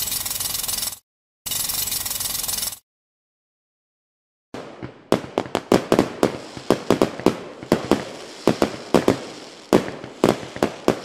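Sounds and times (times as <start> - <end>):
firework shells bursting: 5.3 - 11.0.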